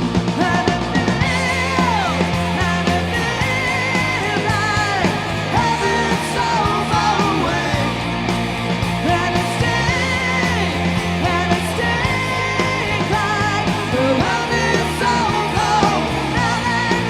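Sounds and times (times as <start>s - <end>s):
bass guitar: 0.0s - 17.0s
distorted electric guitars: 0.0s - 17.0s
person singing: 0.3s - 8.2s, 9.0s - 17.0s.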